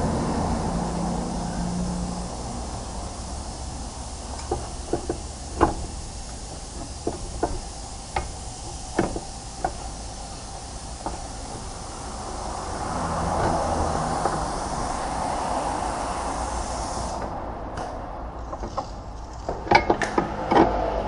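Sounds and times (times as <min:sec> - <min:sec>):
steady low rumble: 0:00.0 - 0:19.5
knocks and clunks: 0:04.4 - 0:09.9, 0:11.0 - 0:11.3, 0:17.8 - 0:20.8.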